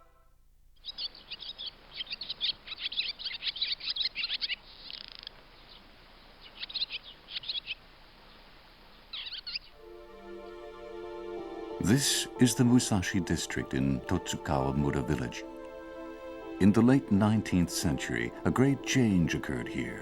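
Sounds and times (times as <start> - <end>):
birds chirping: 0.8 - 20.0
high steady note: 9.8 - 20.0.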